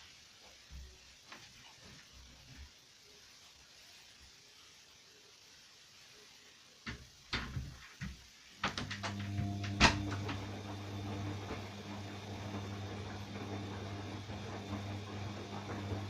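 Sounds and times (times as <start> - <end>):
washing machine clicks and knocks: 6.9 - 16.0
washing machine low hum: 6.9 - 16.0.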